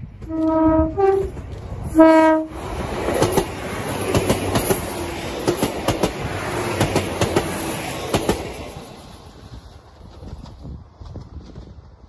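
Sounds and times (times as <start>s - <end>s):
train rumbling past: 0.0s - 12.0s
wheels clacking on rail joints: 0.0s - 12.0s.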